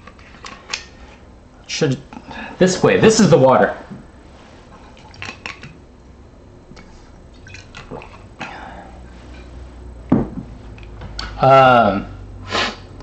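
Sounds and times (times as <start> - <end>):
person gulping water: 6.8 - 8.5.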